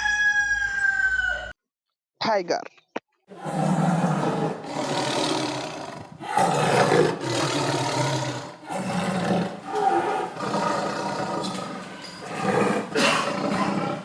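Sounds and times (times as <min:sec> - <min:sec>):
tiger roaring: 0:03.3 - 0:14.0.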